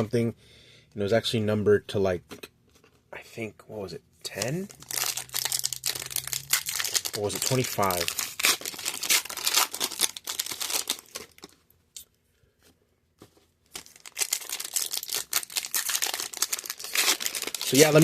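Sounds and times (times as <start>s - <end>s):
wrappers torn open and crinkled: 4.3s - 11.6s, 13.7s - 18.0s.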